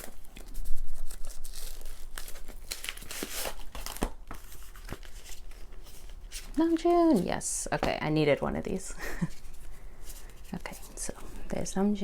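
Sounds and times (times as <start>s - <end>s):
card packaging crinkling and tearing: 0.0s - 7.2s.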